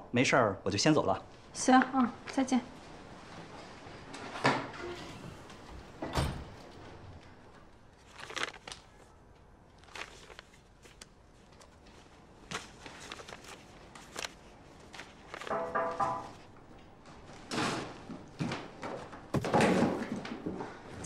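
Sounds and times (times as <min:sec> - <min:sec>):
paper rustling: 0:07.9 - 0:09.1, 0:09.8 - 0:16.5
thud: 0:19.3 - 0:20.2.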